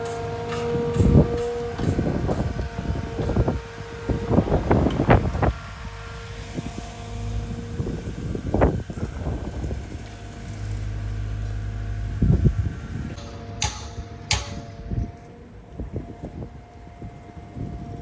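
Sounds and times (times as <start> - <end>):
engine running with whine: 0.0 - 18.0
sharp metal clanks: 13.1 - 15.4
knocks: 13.2 - 15.2.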